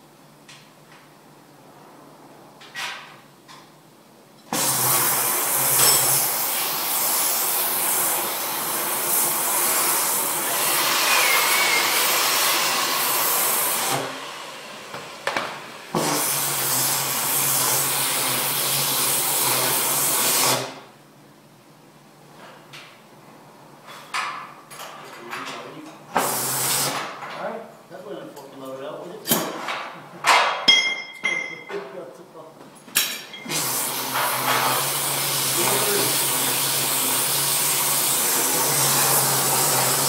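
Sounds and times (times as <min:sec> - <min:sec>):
workshop machine hissing: 0:04.5 - 0:20.9, 0:26.1 - 0:27.2, 0:33.4 - 0:40.0.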